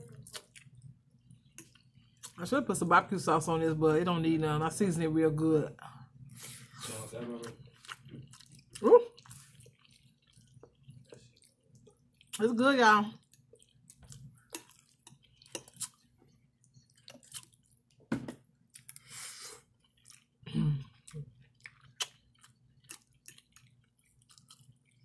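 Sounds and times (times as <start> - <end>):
person chewing wet mouth sounds: 0.0 - 2.4, 7.4 - 12.4, 13.2 - 18.0, 18.7 - 25.0.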